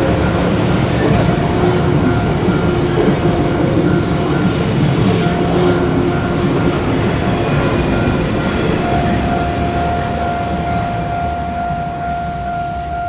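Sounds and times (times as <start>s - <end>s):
steady high-pitched tone: 0.0s - 13.0s
train wheels rumbling on rails: 0.0s - 13.0s
high hiss: 6.8s - 11.2s.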